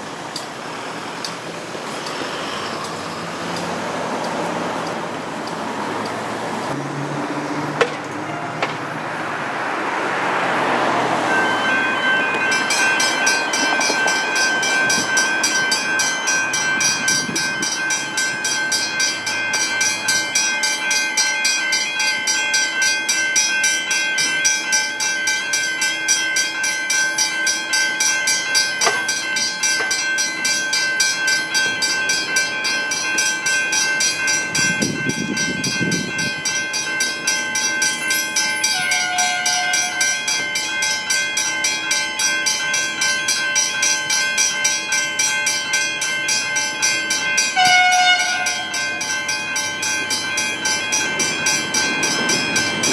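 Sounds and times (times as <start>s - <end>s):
road vehicle passing: 0.0s - 20.4s
level crossing bells ringing: 10.2s - 52.9s.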